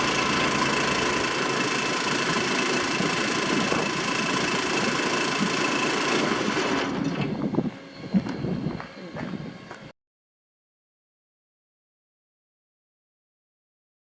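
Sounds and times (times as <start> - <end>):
air compressor pump whine: 0.0 - 9.9
petrol engine running: 0.0 - 9.9.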